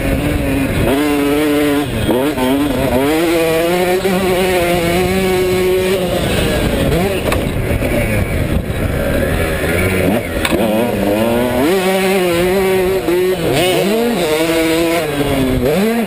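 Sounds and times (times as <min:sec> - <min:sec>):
two-stroke engine revving: 0:00.0 - 0:16.0.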